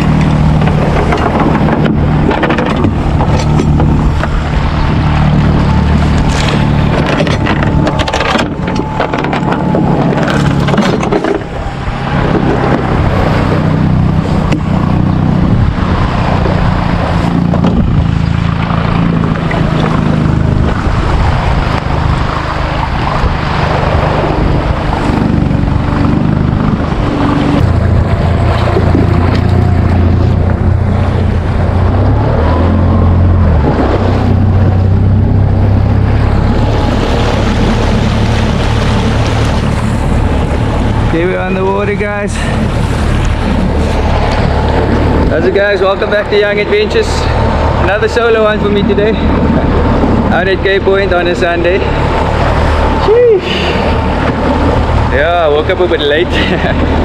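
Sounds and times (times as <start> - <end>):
outboard motor running: 0.0 - 57.0
water rushing past hull: 0.0 - 57.0
wind buffeting microphone: 0.0 - 57.0.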